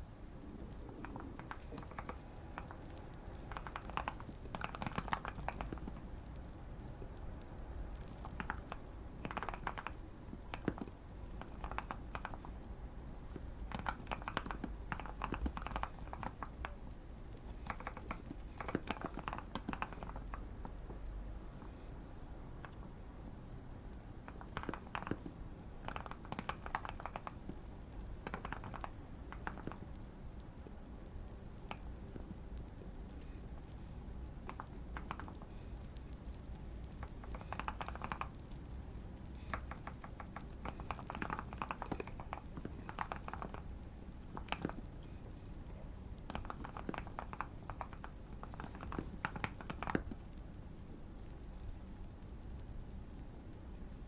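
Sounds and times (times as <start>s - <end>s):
mechanical keyboard typing: 0.8s - 6.5s, 8.0s - 12.5s, 13.3s - 16.8s, 17.6s - 20.7s, 24.3s - 27.5s, 28.2s - 29.9s, 36.8s - 38.6s, 39.5s - 43.7s, 46.2s - 50.2s.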